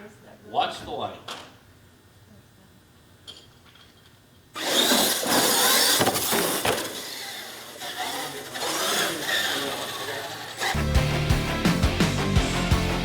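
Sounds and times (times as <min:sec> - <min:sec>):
rc truck motors whining: 0:04.6 - 0:10.9.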